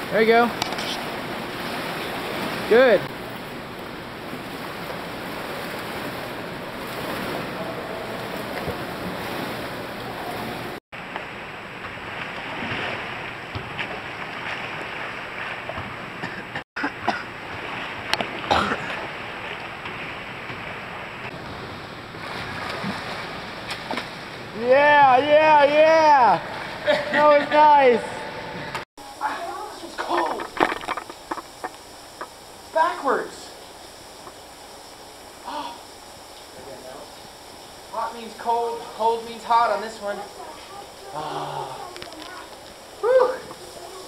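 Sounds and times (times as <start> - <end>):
water sloshing and splashing: 0.0 - 24.6.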